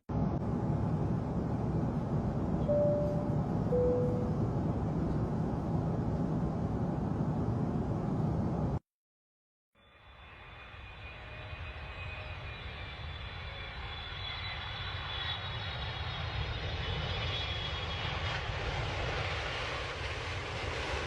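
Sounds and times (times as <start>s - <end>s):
high engine whine: 0.1s - 8.8s
jet airliner engines rumbling: 0.1s - 8.8s, 10.0s - 21.0s.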